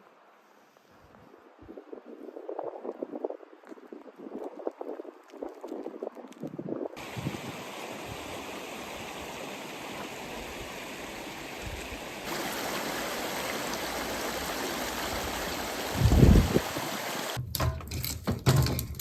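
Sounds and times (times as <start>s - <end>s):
running water rushing: 7.0s - 17.4s.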